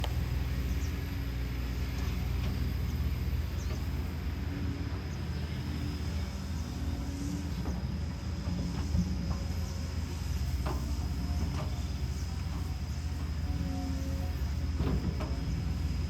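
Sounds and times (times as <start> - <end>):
excavator diesel engine drone: 0.0 - 16.0.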